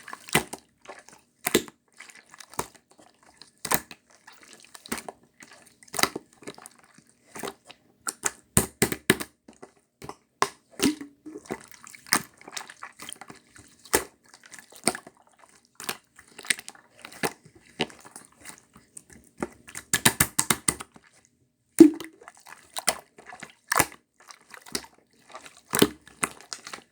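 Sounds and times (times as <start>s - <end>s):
slime popping and squishing: 21.8s - 22.2s.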